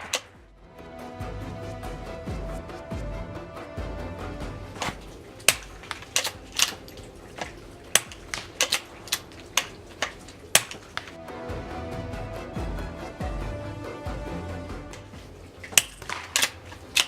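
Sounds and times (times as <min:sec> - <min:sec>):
rifle action clicking: 0:04.8 - 0:11.2, 0:15.7 - 0:17.0.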